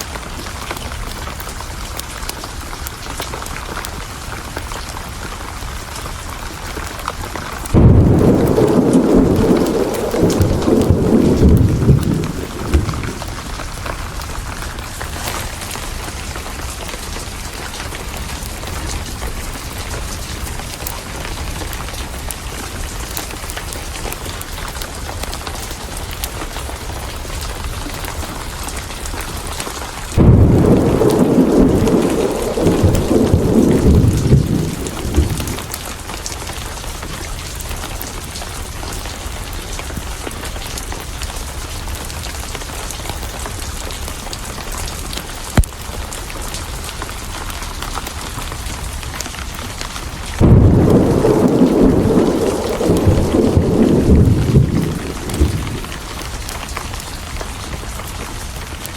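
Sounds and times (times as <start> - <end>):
heavy rain: 0.0 - 58.9
thunder rumbling: 6.8 - 24.8, 25.4 - 37.0, 48.8 - 58.9
loud thunderclap: 7.6 - 16.4, 30.0 - 36.1, 50.3 - 57.0.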